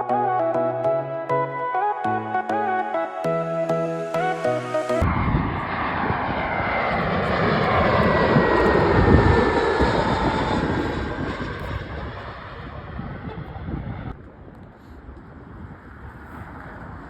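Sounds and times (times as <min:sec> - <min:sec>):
airliner engines passing: 0:03.2 - 0:17.0.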